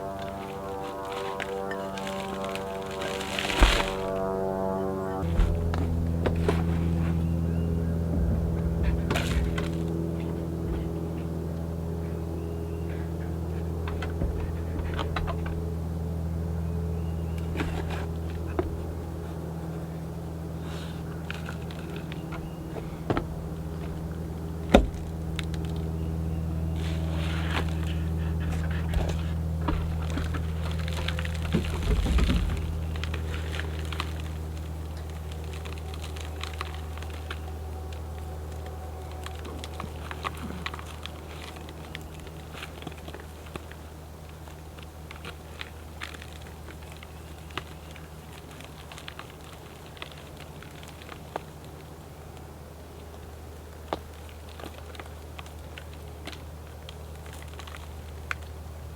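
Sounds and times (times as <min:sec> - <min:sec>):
low machine hum: 0:00.0 - 0:58.9
rustling scrape: 0:00.1 - 0:04.6, 0:05.2 - 0:11.3, 0:26.7 - 0:34.2
plant pots knocking: 0:05.2 - 0:11.5.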